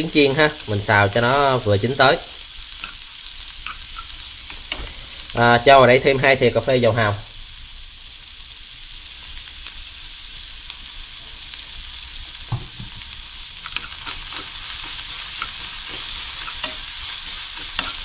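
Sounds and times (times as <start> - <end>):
cabbage sizzling in a pan: 0.0 - 18.0
utensil clicking against pan: 17.5 - 18.0.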